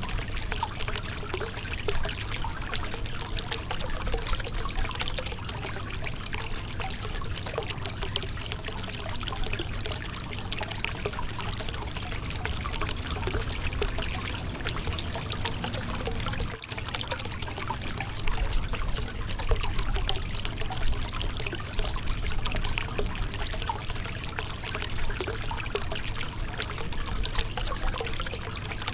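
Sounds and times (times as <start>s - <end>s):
small water splashes: 0.0s - 28.9s
river water babbling over rocks: 10.9s - 16.6s.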